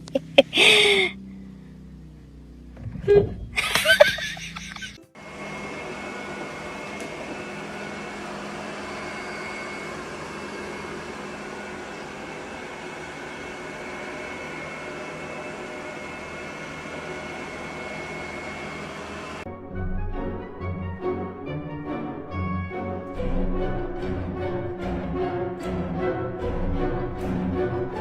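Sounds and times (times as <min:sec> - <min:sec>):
machine whirring hum: 0:00.0 - 0:19.5.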